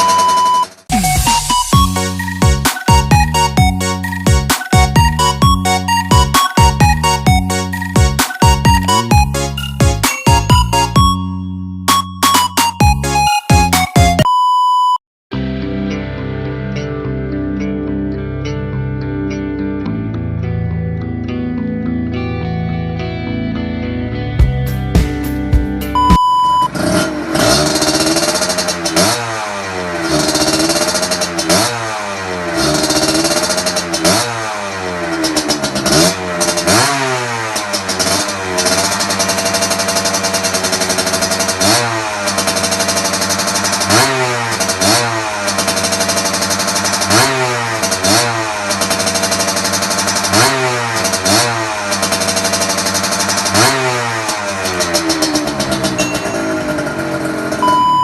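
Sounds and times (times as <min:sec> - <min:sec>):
two-stroke engine revving: 0:00.0 - 0:11.1, 0:26.0 - 0:58.0.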